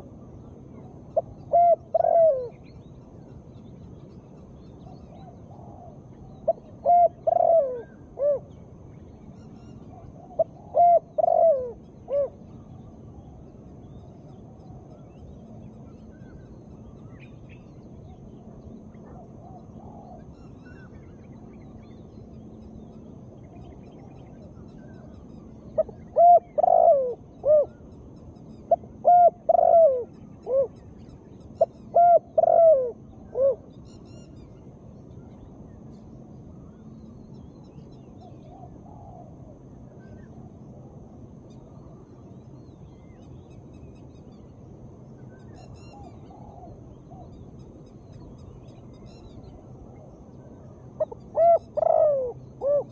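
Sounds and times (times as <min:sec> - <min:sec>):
dove cooing: 0:01.1 - 0:02.6, 0:05.2 - 0:08.5, 0:09.9 - 0:12.4, 0:19.0 - 0:20.3, 0:25.7 - 0:27.9, 0:28.7 - 0:30.8, 0:31.6 - 0:33.7, 0:38.3 - 0:41.0, 0:45.9 - 0:47.3, 0:51.0 - 0:52.9.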